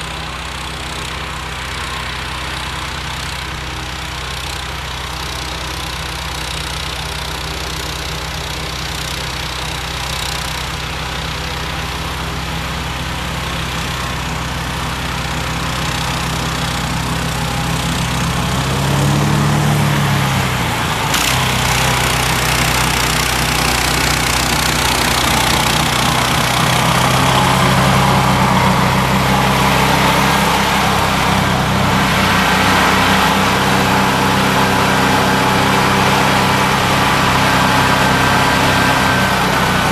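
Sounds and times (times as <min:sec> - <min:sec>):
snowblower engine running: 0:00.0 - 0:39.9.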